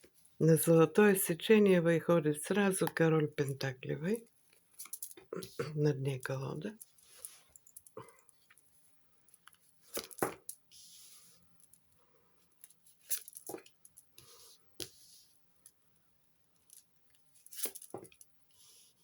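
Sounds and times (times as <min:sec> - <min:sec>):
cards snapping: 0:09.9 - 0:10.4
cards sliding: 0:09.9 - 0:11.3.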